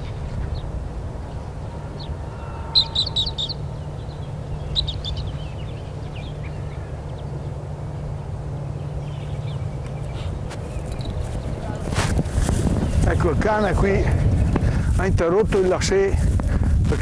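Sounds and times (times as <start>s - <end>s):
steady low rumble: 0.0s - 17.0s
small bird chirping: 2.0s - 7.6s.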